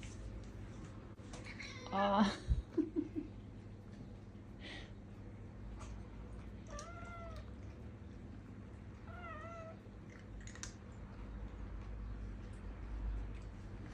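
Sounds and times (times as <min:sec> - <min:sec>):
cat meowing: 0:06.7 - 0:07.5, 0:09.1 - 0:09.8.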